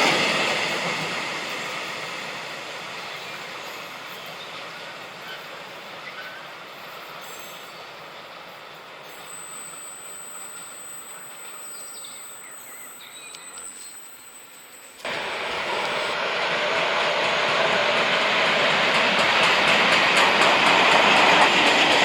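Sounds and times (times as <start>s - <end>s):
train running on track: 0.0s - 22.0s
thin high steady tone: 9.2s - 15.2s.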